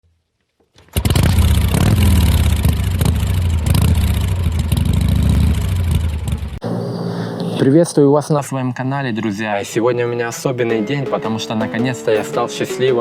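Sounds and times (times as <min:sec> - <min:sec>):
motorcycle engine running: 0:00.9 - 0:06.8.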